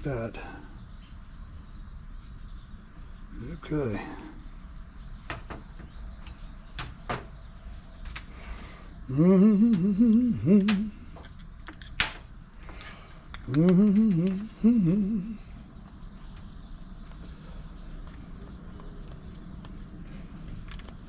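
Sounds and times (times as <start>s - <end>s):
man humming: 9.0s - 11.3s, 13.4s - 15.6s.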